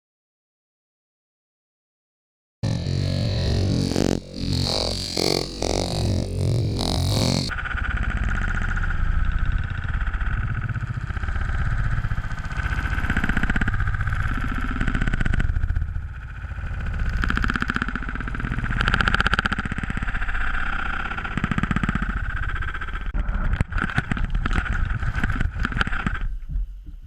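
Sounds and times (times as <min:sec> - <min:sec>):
off-road vehicle engine revving: 0:02.6 - 0:07.5.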